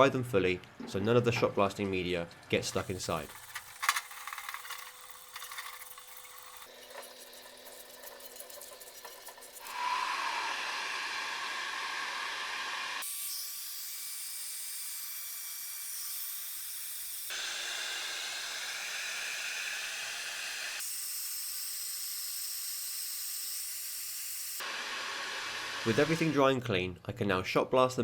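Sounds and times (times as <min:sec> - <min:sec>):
air blow gun hissing: 0:17.3 - 0:21.0, 0:24.6 - 0:26.4.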